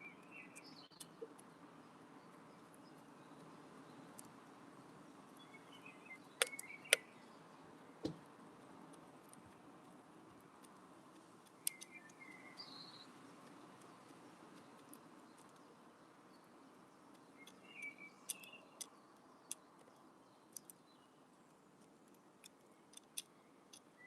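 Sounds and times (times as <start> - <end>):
bird pecking at window feeder: 6.4 - 7.1.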